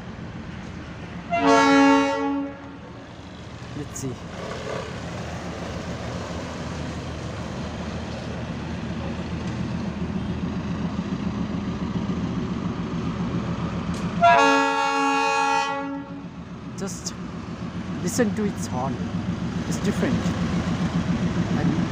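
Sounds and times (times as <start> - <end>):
diesel locomotive engine rumbling: 0.0 - 21.9
locomotive horn: 1.2 - 3.0, 14.2 - 16.3.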